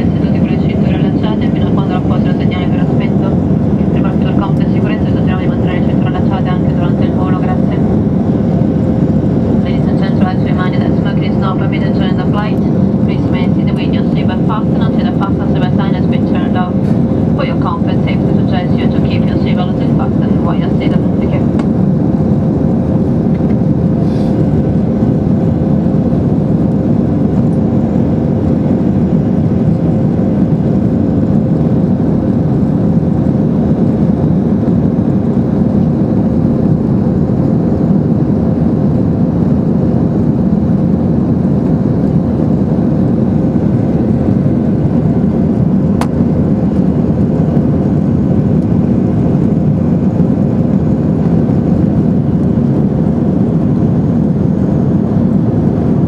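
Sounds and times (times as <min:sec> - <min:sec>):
engine and rushing air drone: 0:00.0 - 0:56.0
faint steady hum: 0:00.0 - 0:56.0.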